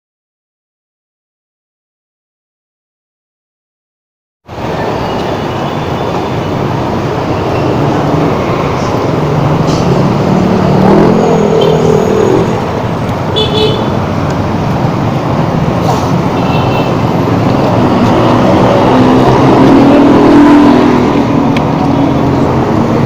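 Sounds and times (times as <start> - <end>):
road traffic noise: 4.5 - 23.0
vehicle engine rising in pitch: 7.3 - 13.0, 16.0 - 23.0.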